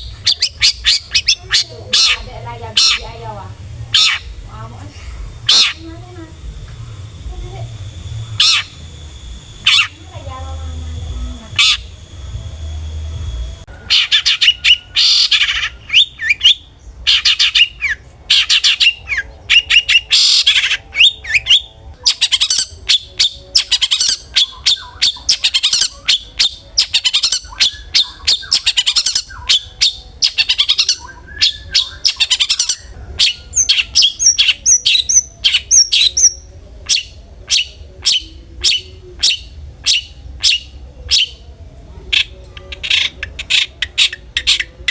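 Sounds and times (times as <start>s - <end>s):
shrike harsh calls: 0.0s - 41.4s
rising whistled bird notes: 11.1s - 41.4s.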